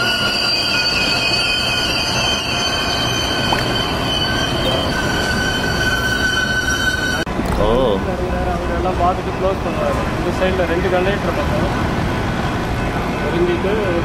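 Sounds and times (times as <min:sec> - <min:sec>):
train wheels squealing: 0:00.0 - 0:07.3
train cars rumbling: 0:00.0 - 0:14.0.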